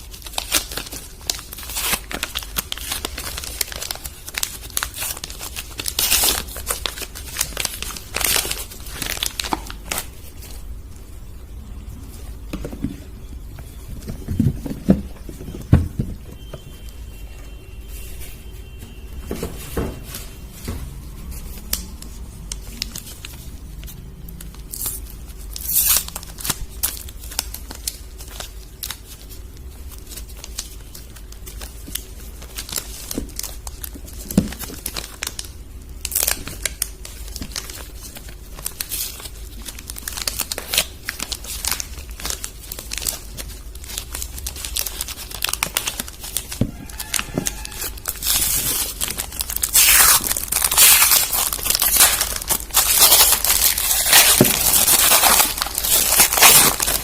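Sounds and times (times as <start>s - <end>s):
wrappers crinkling: 0.0s - 10.7s, 19.6s - 57.0s
low steady hum: 0.0s - 57.0s.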